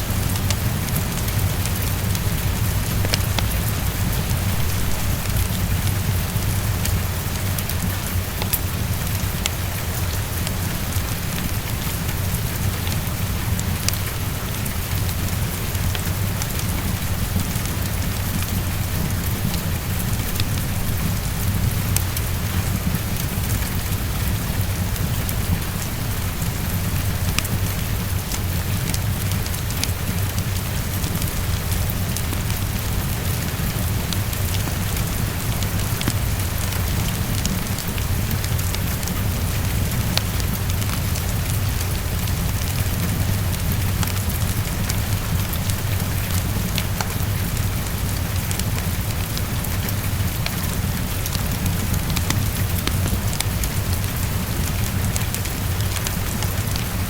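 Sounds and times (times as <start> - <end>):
heavy rainfall: 0.0 - 57.0
fireplace wood crackling: 1.6 - 7.2
low rumble: 2.4 - 7.3.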